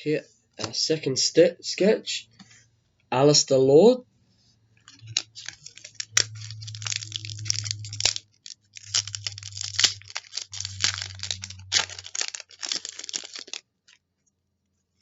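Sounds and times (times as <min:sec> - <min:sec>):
card pack wrapper tearing and crinkling: 0:04.9 - 0:14.0.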